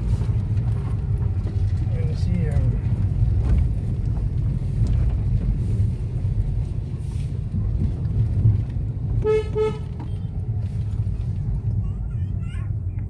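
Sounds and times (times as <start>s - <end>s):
vehicle low rumble: 0.0s - 13.0s
horn toots: 9.2s - 10.0s.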